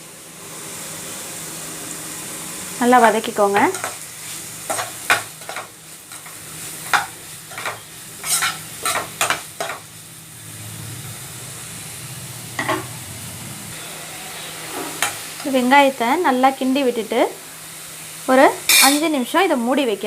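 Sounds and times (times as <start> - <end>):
onions sizzling in hot oil: 0.0 - 20.0
spatula scraping a pan: 6.9 - 9.8.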